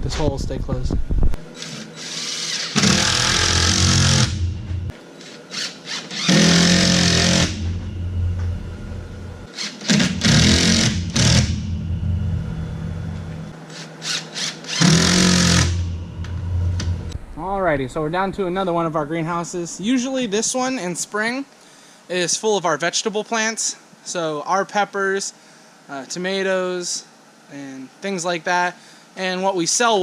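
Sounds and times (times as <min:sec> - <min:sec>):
cordless drill driving screws into wood: 0:01.6 - 0:04.4, 0:05.2 - 0:07.6, 0:09.6 - 0:11.5, 0:13.7 - 0:15.8.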